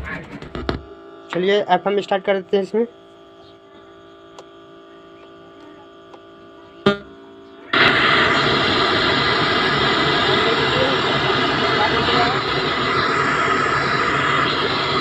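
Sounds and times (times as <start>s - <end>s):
faint speaker hum: 0.0s - 7.9s
radio static hiss: 0.0s - 15.0s.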